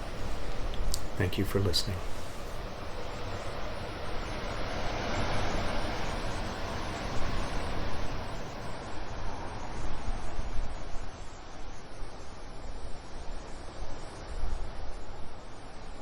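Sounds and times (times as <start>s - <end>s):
steady rushing noise: 0.0s - 9.6s.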